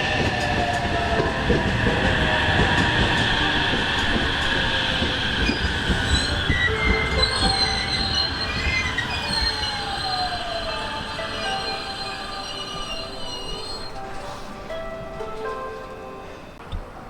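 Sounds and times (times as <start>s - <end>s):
train wheels squealing: 0.0s - 15.6s
train rumble: 0.0s - 17.0s.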